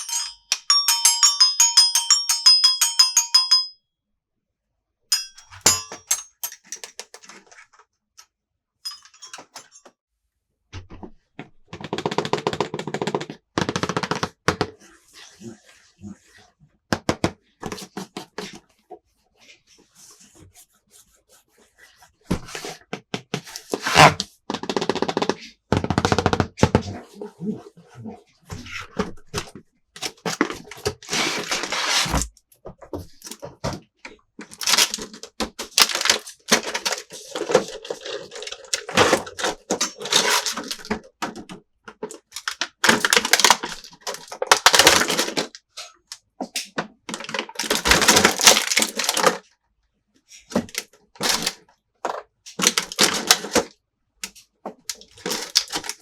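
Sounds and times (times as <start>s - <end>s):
plastic pieces clicking: 34.5s - 40.9s, 42.3s - 45.5s, 47.1s - 49.4s, 52.6s - 56.0s
plastic packaging crinkling: 34.6s - 40.9s, 42.4s - 45.6s, 47.1s - 49.4s, 52.6s - 53.7s, 55.0s - 56.0s.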